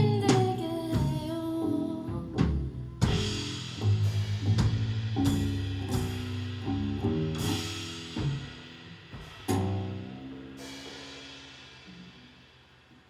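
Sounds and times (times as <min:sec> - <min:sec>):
live band playing: 0:00.0 - 0:09.6
drum kit strokes: 0:00.0 - 0:13.0.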